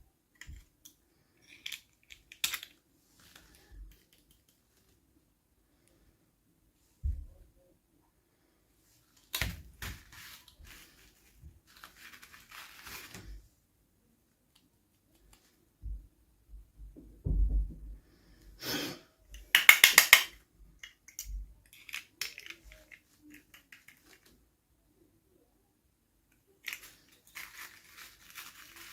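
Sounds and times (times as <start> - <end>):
plastic pieces clicking: 0.3 - 4.6, 19.3 - 24.4, 26.3 - 28.9
plastic packaging crinkling: 9.2 - 13.4, 26.6 - 28.9
soft thumps: 15.8 - 18.1.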